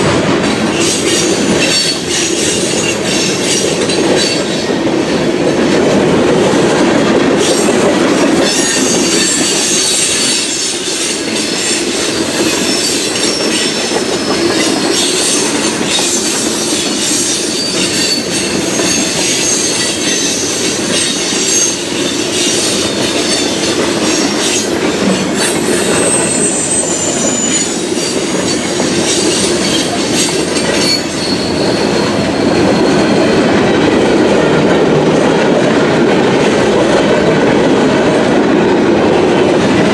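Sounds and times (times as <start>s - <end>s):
train wheels rumbling on rail: 0.0s - 39.9s
metallic wheel squeal: 0.8s - 4.5s, 12.4s - 33.3s.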